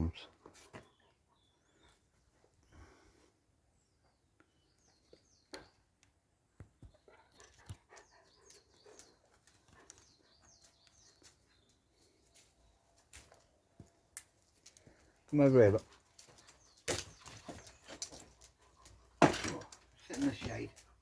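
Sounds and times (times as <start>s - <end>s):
faint bird chirps: 0.8s - 2.8s.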